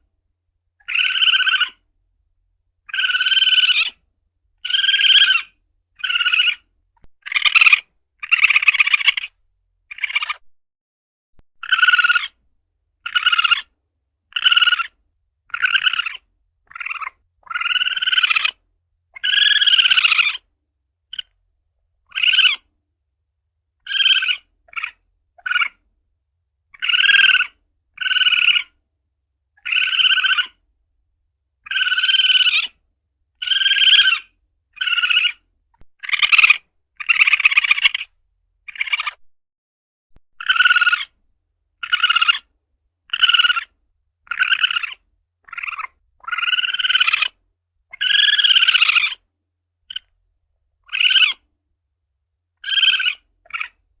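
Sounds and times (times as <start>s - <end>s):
civet calling: 0.8s - 1.8s, 2.8s - 4.0s, 4.6s - 10.4s, 11.6s - 12.4s, 13.0s - 13.7s, 14.3s - 18.6s, 19.2s - 20.5s, 21.1s - 21.4s, 22.0s - 22.7s, 23.8s - 25.8s, 26.7s - 28.8s, 29.6s - 30.6s, 31.6s - 32.8s, 33.4s - 39.2s, 40.4s - 41.2s, 41.8s - 42.5s, 43.1s - 49.2s, 49.9s - 50.1s, 50.8s - 51.5s, 52.6s - 53.8s.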